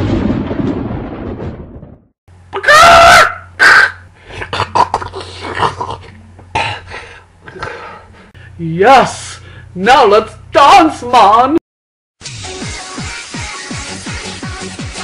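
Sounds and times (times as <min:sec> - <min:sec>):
shrill high cry: 0:02.6 - 0:04.0.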